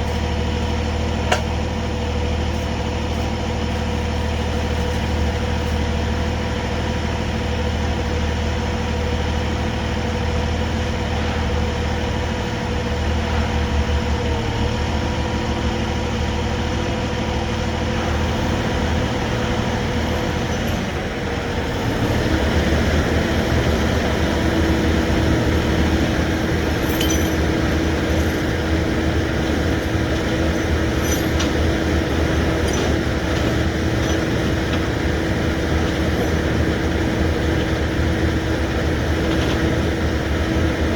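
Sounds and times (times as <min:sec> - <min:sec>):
steady mechanical whine: 0:00.0 - 0:40.9
truck engine running: 0:00.0 - 0:40.9
faint metallic clinks: 0:26.6 - 0:28.7, 0:29.4 - 0:34.8.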